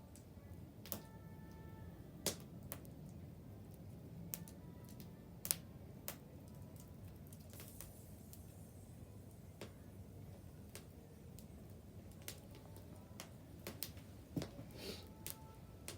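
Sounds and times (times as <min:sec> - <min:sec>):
wood fire crackling and popping: 0:02.2 - 0:15.9.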